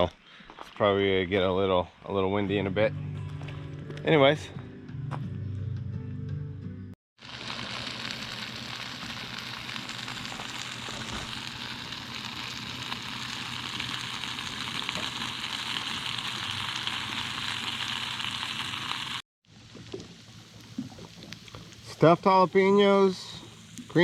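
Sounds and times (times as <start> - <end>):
food sizzling on a grill: 7.2 - 19.2, 21.9 - 24.0.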